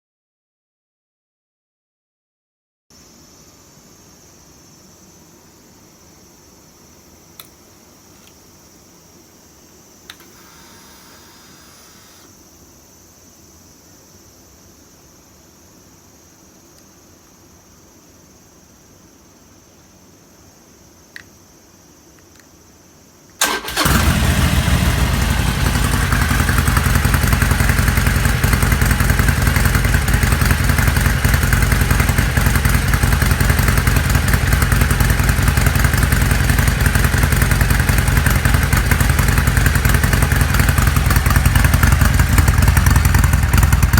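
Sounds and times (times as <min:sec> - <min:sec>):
single click: 0:07.4 - 0:07.6
motorcycle engine starting and idling: 0:10.1 - 0:12.3, 0:23.4 - 0:43.9.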